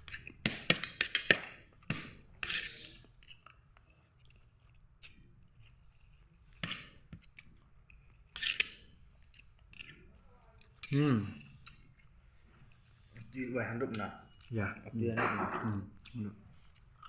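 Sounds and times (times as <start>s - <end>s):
cutlery scraping on plates: 0.0s - 3.6s, 15.1s - 16.0s.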